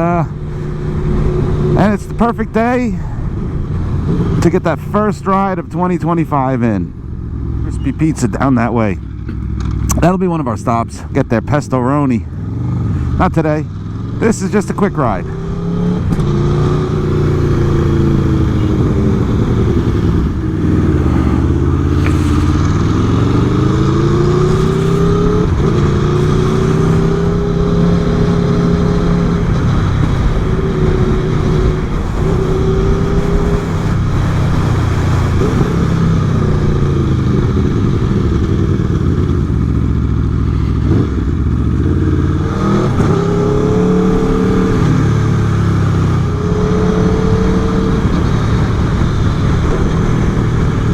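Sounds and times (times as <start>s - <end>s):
motorcycle engine running: 0.0s - 10.2s, 11.9s - 50.9s
wind noise: 15.7s - 39.6s.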